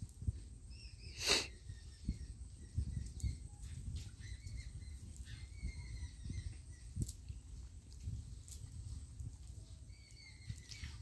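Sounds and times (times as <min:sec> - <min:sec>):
faint bird chirps: 0:00.6 - 0:07.5, 0:09.6 - 0:11.0.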